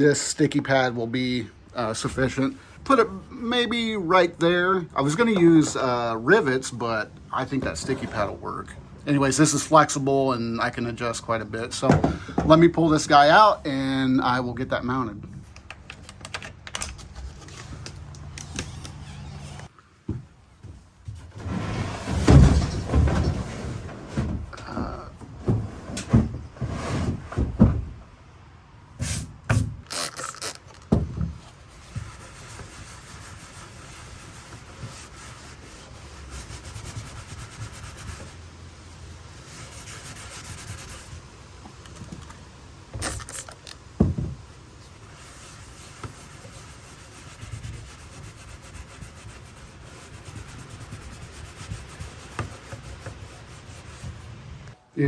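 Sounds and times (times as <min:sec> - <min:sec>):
kayak and gear knocking and scraping: 0:20.7 - 0:28.0, 0:30.6 - 0:38.4, 0:43.1 - 0:54.4
rubbing against kayak hull: 0:21.0 - 0:27.6, 0:31.3 - 0:41.2, 0:44.8 - 0:54.4.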